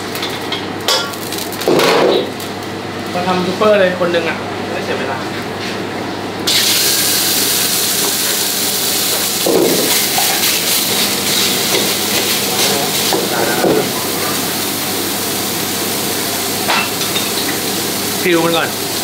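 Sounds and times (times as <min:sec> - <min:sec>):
meat sizzling in a wok: 0:00.0 - 0:02.8, 0:06.5 - 0:19.0.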